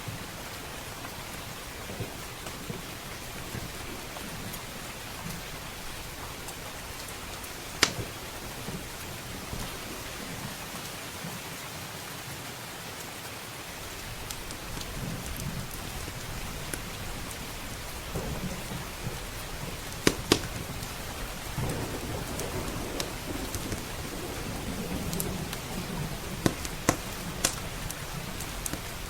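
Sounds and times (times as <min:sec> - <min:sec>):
wood fire crackling: 0:00.0 - 0:11.5, 0:13.7 - 0:29.0
steady rain: 0:00.0 - 0:29.0
low rolling thunder: 0:13.8 - 0:29.0.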